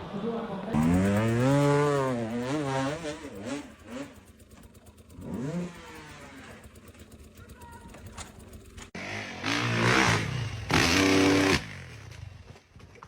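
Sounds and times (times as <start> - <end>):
truck engine revving hard: 0.8 - 4.1, 9.0 - 12.1.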